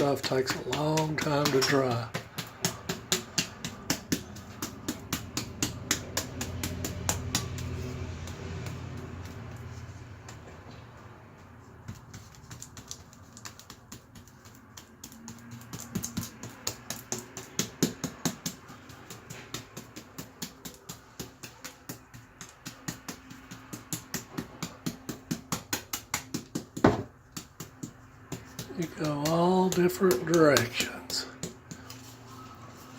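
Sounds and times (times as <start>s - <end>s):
brush dabbing wet compound on wall: 0.0s - 32.9s.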